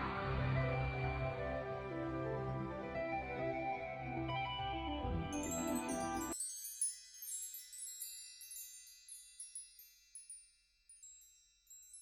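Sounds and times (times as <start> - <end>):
chimes tinkling: 5.3 - 12.0.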